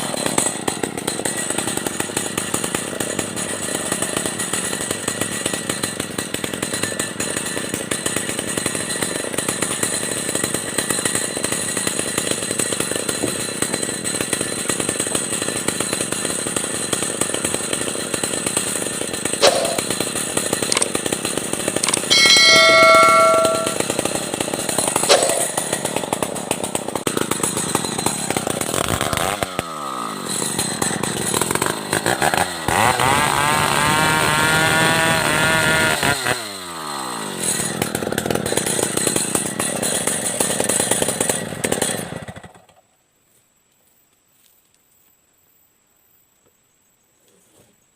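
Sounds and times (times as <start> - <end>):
chainsaw sawing timber: 0.0 - 42.8
high-pitched whine: 22.1 - 23.8
sharp knocks: 25.1 - 25.5.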